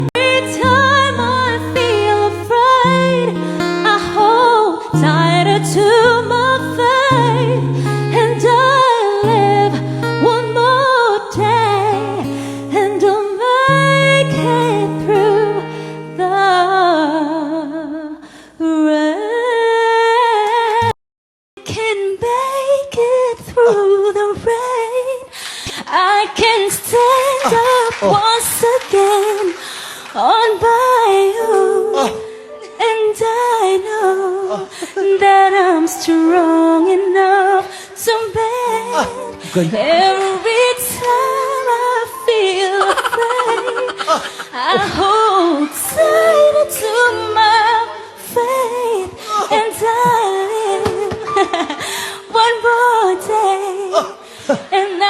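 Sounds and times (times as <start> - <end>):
held backing chords: 0.0 - 17.8, 35.5 - 54.4
person singing a slow ballad: 0.0 - 21.0, 21.6 - 55.0
background noise: 21.6 - 55.0.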